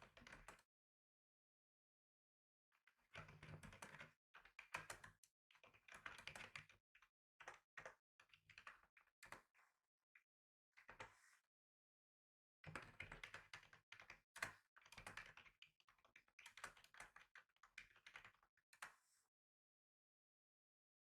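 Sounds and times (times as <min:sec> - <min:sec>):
typing on computer keyboard: 0:12.7 - 0:18.4.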